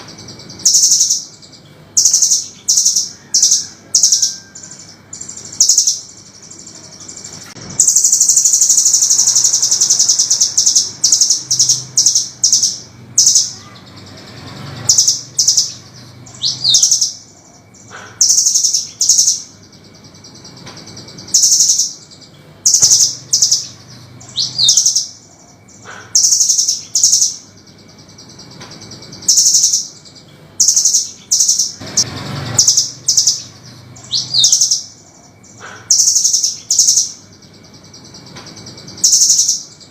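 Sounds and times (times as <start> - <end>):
bird chattering trills: 0.0 - 39.9.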